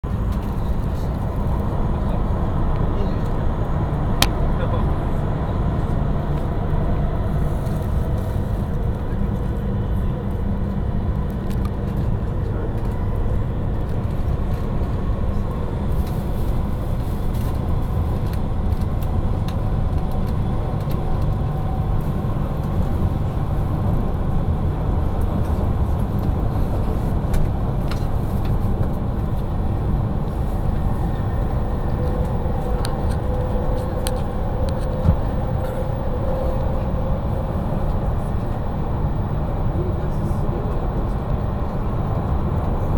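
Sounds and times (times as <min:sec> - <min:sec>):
train wheels rumbling: 0:00.0 - 0:42.9.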